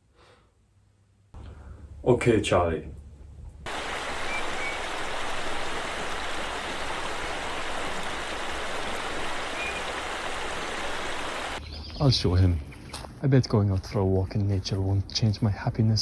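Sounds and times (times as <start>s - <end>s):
stream water rushing: 3.7s - 11.6s
faint high peeps: 4.2s - 4.9s.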